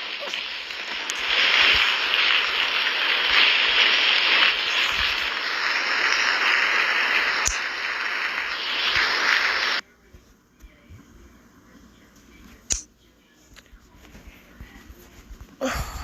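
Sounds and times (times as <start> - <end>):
sharp click: 12.7 - 12.9.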